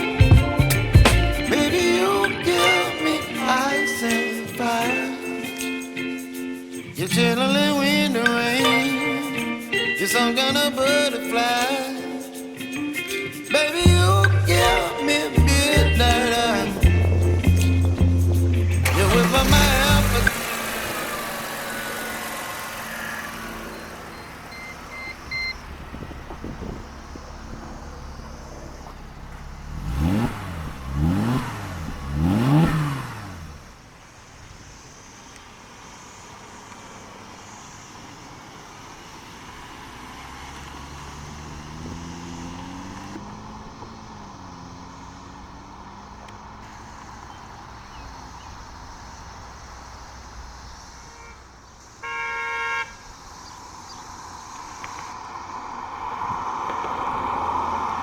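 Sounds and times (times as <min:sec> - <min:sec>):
car engine idling and revving: 0:00.0 - 0:02.7, 0:13.2 - 0:58.0
short electronic beeps: 0:23.7 - 0:25.6.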